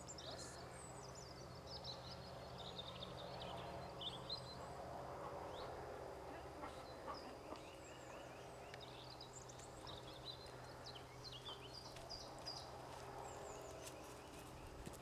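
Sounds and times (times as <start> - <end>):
small birds chirping: 0.0 - 15.0
steady low hum: 0.0 - 15.0.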